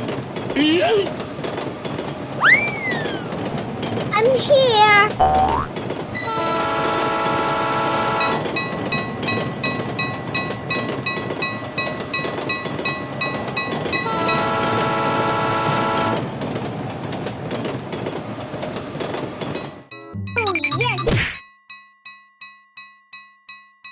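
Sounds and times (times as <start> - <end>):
train rumbling on rails: 0.0 - 20.0
multi-note train horn: 6.2 - 8.4, 14.0 - 16.2.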